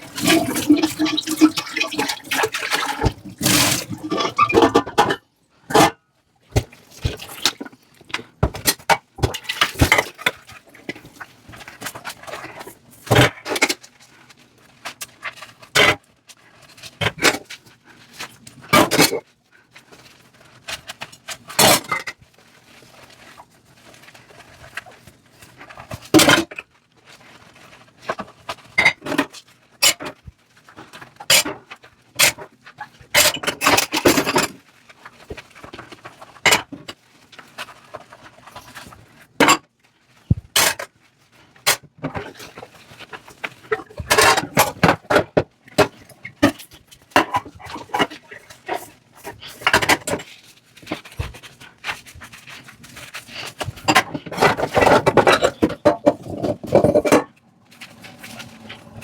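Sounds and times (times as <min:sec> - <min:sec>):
dishes clinking in sink: 0:00.0 - 0:06.0
scrubbing dishes: 0:00.0 - 0:13.7, 0:41.6 - 0:59.0.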